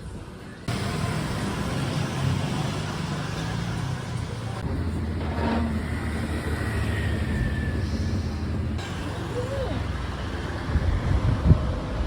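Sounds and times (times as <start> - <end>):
road noise: 0.0 - 12.0
vehicle engine hum: 0.7 - 12.0.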